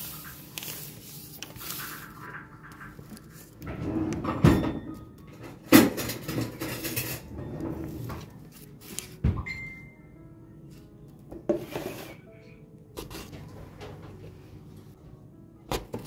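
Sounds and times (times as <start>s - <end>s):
rustling and scraping: 11.5s - 12.2s, 13.0s - 14.5s.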